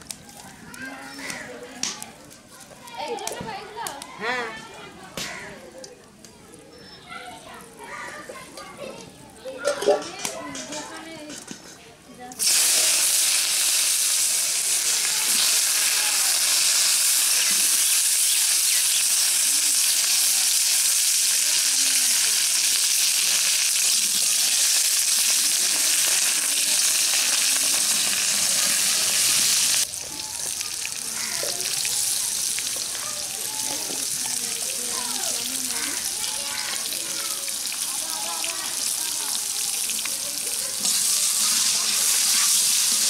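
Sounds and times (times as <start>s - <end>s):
potatoes sizzling in hot oil: 12.4s - 43.0s.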